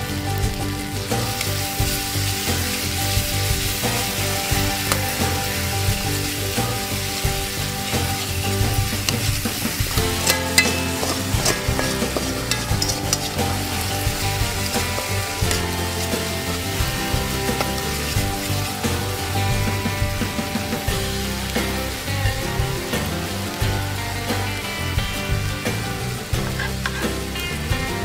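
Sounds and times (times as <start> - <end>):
chili paste sizzling in oil: 0.0 - 28.0
metal spatula scraping pan: 8.2 - 18.8, 26.4 - 27.2.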